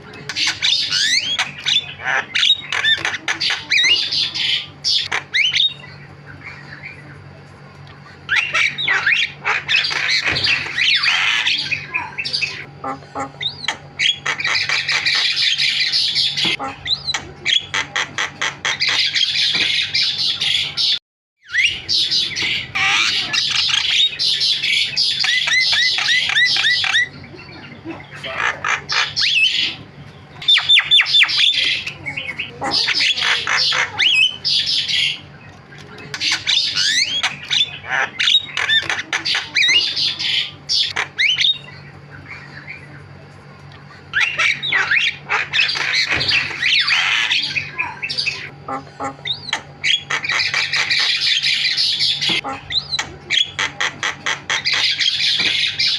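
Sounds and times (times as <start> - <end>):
myna bird chattering song: 0.0 - 55.9.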